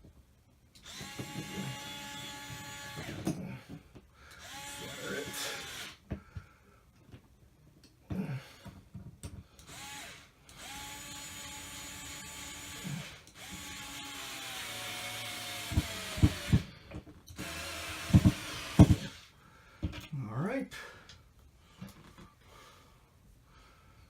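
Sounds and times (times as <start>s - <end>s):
power drill driving screws: 0.8s - 3.3s, 4.4s - 6.0s, 9.6s - 19.3s.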